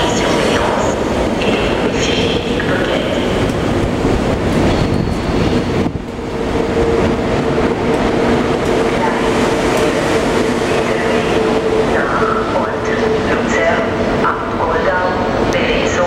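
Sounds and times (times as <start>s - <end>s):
train wheels rumbling on rails: 0.0s - 16.0s
high wheel squeals: 4.6s - 5.6s.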